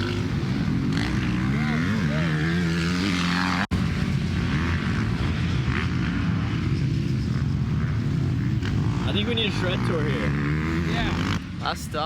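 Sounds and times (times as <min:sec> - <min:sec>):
dirt bike engines running: 0:00.0 - 0:12.0.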